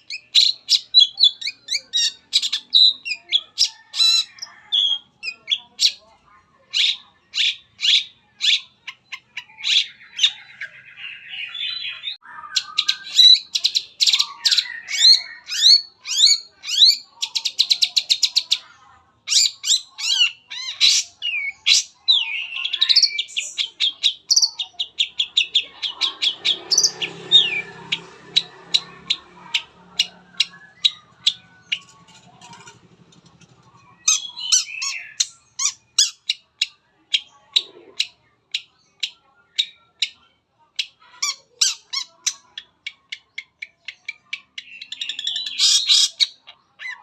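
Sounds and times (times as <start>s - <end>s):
bird singing varied song: 0.0s - 47.0s
low murmur: 24.8s - 36.0s.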